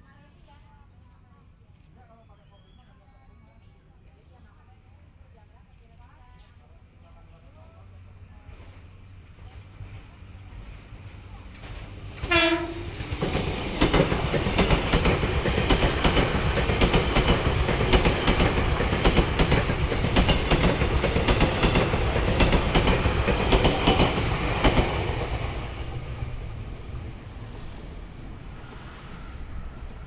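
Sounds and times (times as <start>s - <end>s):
train running noise: 7.1s - 30.0s
wheels clickety-clack over rail joints: 9.6s - 30.0s
train horn blast: 12.2s - 13.0s.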